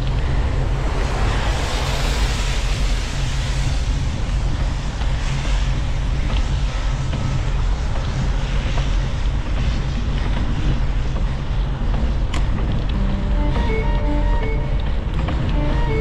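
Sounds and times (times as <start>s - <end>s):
traffic: 0.0s - 7.0s, 11.4s - 16.0s
wind rumble on microphone: 0.0s - 13.0s
tyre hiss on wet road: 0.2s - 9.2s
music with held notes: 13.0s - 16.0s.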